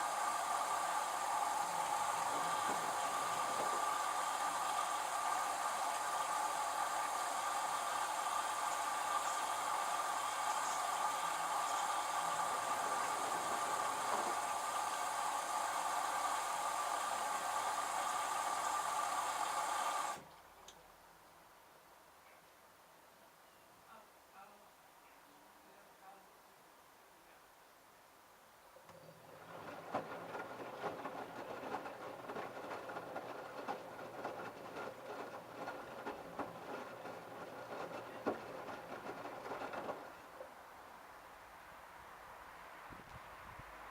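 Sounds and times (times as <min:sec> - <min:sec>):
washing machine whirring: 0:00.0 - 0:20.3, 0:28.9 - 0:40.7.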